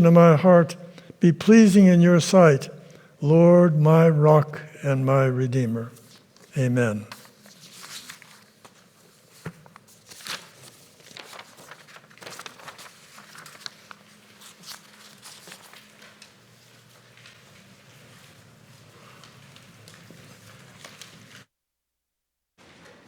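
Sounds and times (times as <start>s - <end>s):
rustling and shuffling: 5.9s - 21.5s.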